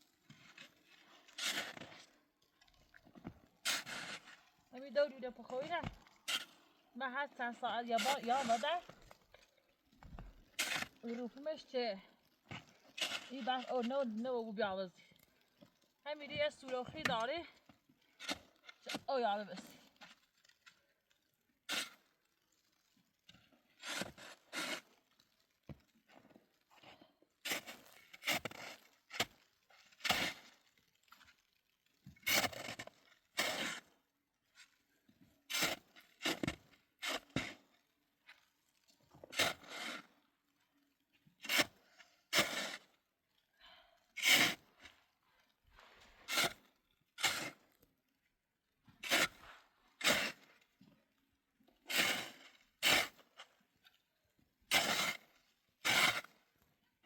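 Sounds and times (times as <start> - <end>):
scraping strokes: 3.6 - 4.5, 5.6 - 6.6.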